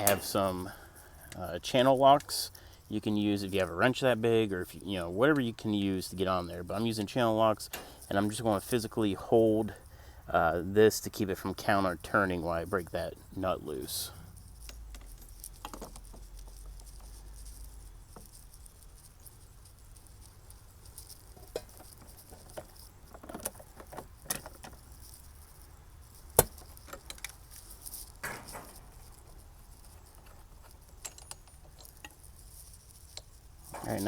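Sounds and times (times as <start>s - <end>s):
metal clicks of pliers: 0.0s - 0.6s.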